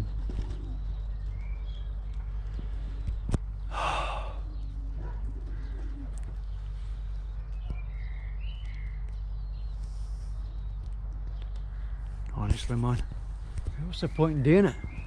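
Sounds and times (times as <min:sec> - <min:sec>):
faint bird chirps: 0:00.0 - 0:15.0
steady low hum: 0:00.0 - 0:15.0
breathy rush: 0:03.7 - 0:04.5.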